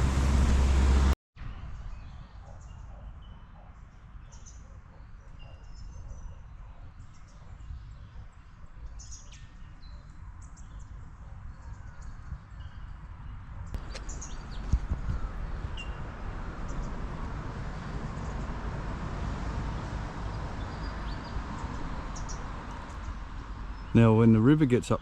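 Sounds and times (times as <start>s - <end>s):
steady low rumble: 0.0s - 1.2s.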